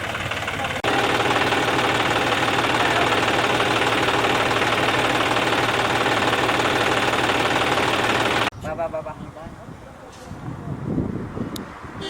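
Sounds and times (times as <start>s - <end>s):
tractor diesel engine chugging: 0.0s - 8.5s.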